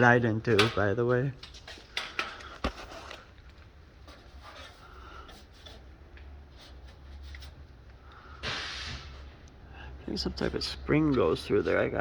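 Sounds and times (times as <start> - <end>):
faint rustling and scraping: 0.6 - 9.4.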